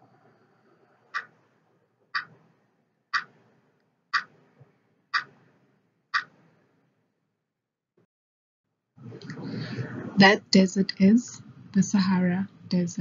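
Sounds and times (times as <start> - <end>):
clock ticking: 1.1 - 1.4, 2.1 - 2.4, 3.1 - 3.4, 4.1 - 4.4, 5.1 - 5.5, 6.1 - 6.4.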